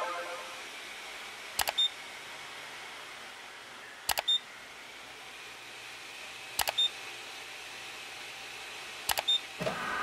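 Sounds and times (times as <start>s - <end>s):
mouse clicks: 1.6s - 1.8s, 4.1s - 4.3s, 6.6s - 6.8s, 9.1s - 9.3s.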